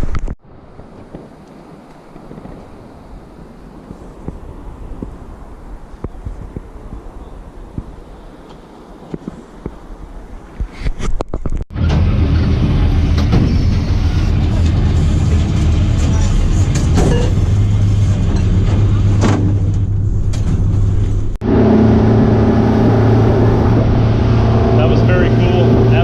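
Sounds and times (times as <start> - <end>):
engine humming: 11.7 - 26.0.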